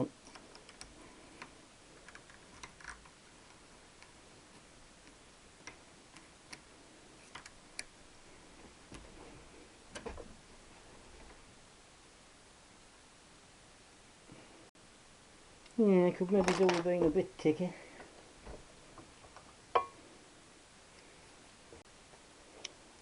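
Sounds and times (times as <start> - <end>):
small parts clicking and tapping: 0.2 - 8.0.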